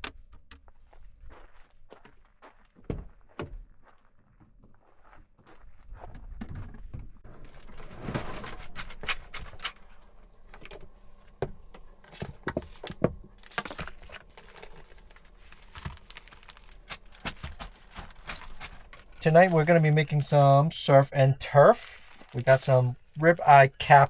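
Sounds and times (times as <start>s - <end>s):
objects being handled: 6.4s - 19.8s.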